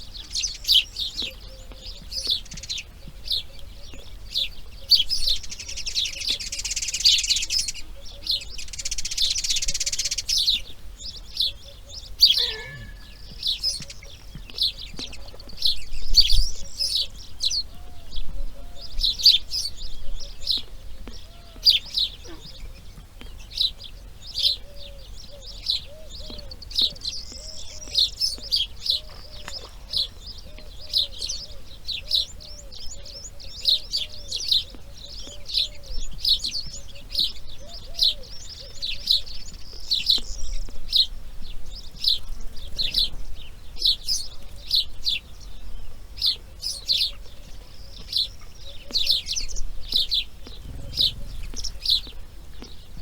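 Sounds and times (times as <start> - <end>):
birds chirping: 0.0 - 53.0
lower softer bird call: 11.6 - 14.1, 48.6 - 52.9.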